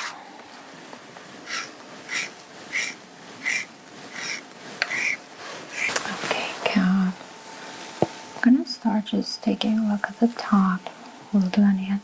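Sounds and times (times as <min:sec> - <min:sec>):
rubbing strokes on fabric: 0:01.3 - 0:08.4.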